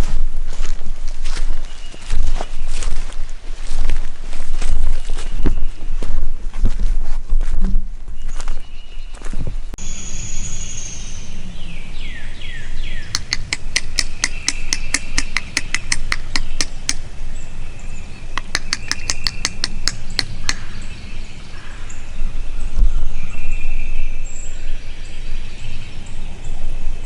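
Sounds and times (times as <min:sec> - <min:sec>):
sharp evenly spaced bird notes: 0:08.2 - 0:27.0
falling slurred bird calls: 0:09.8 - 0:27.0.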